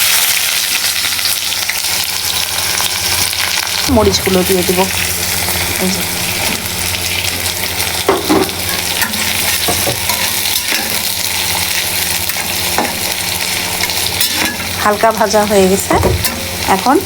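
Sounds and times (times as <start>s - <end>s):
onions sizzling in hot oil: 0.0s - 17.0s
spatula scraping and knocking pan: 8.0s - 11.1s, 12.3s - 13.2s.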